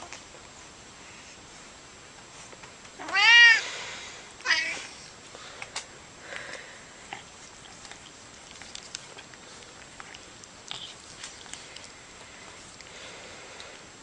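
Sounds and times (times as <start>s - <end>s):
cat meowing: 3.0s - 3.6s, 4.4s - 4.8s.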